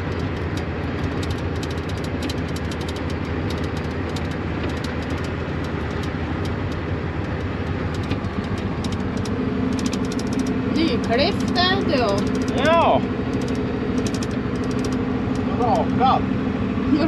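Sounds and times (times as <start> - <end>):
tractor engine humming: 0.0 - 17.0.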